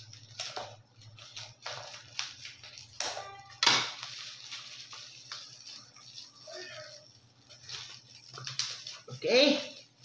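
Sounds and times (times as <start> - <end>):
plastic crinkling: 0.0 - 10.0.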